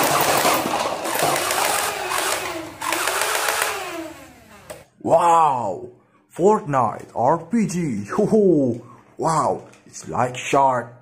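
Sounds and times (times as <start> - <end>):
toy gun rattling fire: 0.0 - 3.8.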